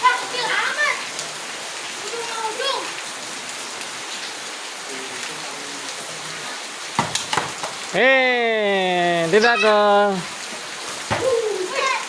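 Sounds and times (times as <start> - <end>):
rain falling on ground: 0.0 - 12.0
person shouting: 8.0 - 10.3.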